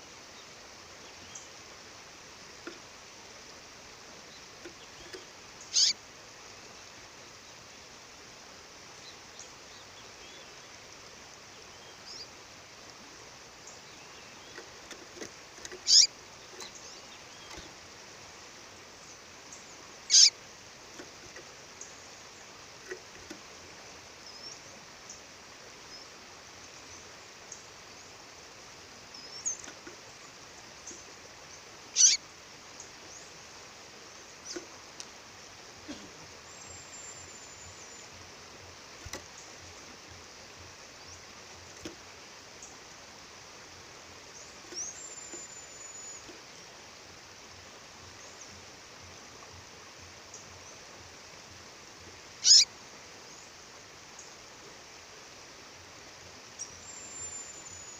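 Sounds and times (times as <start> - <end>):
songbird chirping: 0.0 - 57.9
bird calls sweeping down: 5.7 - 6.0, 15.8 - 16.1, 20.1 - 20.3, 32.0 - 32.2, 52.4 - 52.7
thin bird whistles: 52.4 - 52.7.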